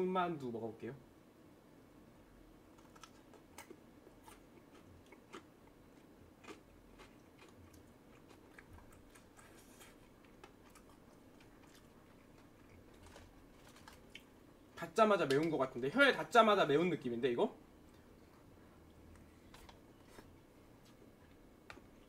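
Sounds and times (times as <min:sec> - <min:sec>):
faint chewing: 0:02.7 - 0:14.3, 0:17.8 - 0:22.0.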